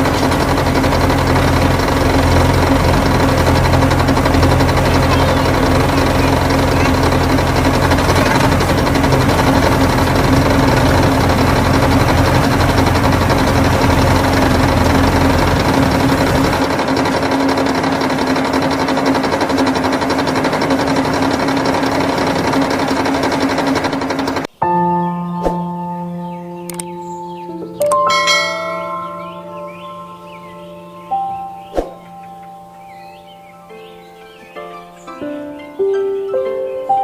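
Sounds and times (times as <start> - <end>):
motor buzzing: 0.0 - 24.5.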